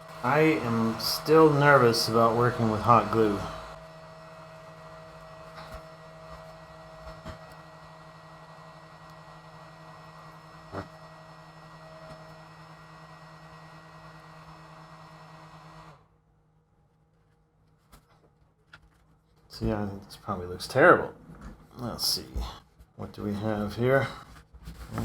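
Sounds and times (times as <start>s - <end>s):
electrical hum: 0.0s - 16.2s.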